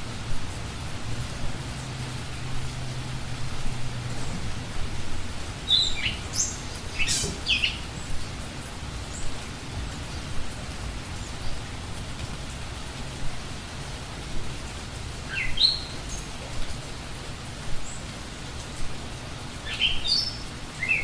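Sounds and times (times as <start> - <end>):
background hiss: 0.0 - 21.0
bird chirping: 5.6 - 8.2, 15.3 - 16.3, 19.6 - 21.0.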